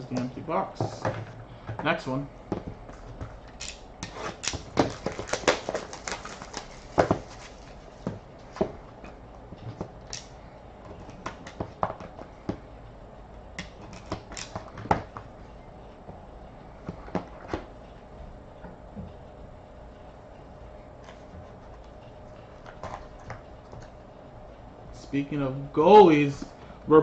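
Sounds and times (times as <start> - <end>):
hands handling card box packaging: 4.0 - 8.7
packaging crinkling: 4.2 - 7.8.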